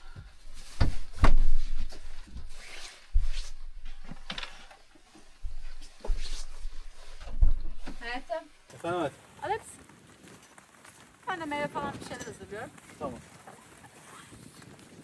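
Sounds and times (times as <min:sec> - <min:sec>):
objects knocking and thumping: 0:00.0 - 0:08.5.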